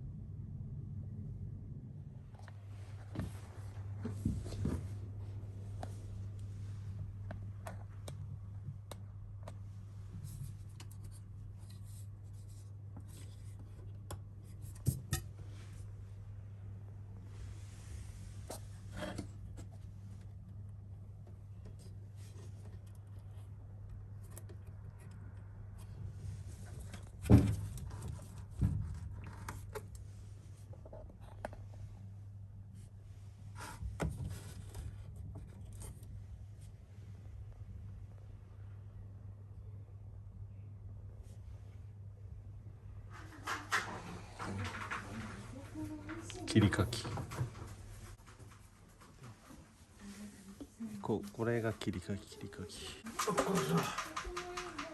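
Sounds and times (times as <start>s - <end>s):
steady low hum: 0.0s - 54.9s
scraping and rustling: 53.0s - 54.9s.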